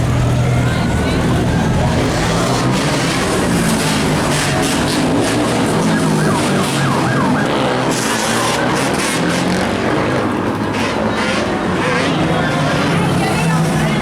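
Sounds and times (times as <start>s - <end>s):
motorcycle engines revving: 0.0s - 14.0s
siren yelping: 4.1s - 9.3s, 12.0s - 13.2s.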